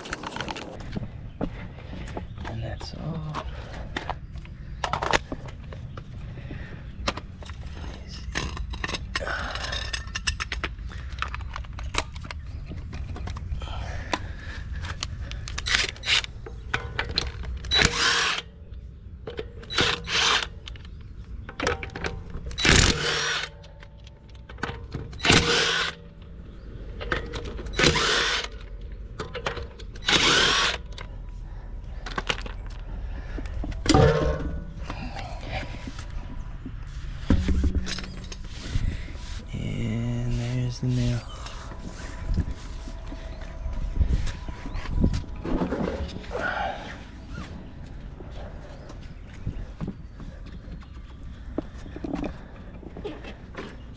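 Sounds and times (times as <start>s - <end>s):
impact wrench bursts: 17.7s - 18.4s, 22.6s - 23.5s, 25.2s - 26.0s, 27.7s - 28.6s, 30.0s - 31.0s.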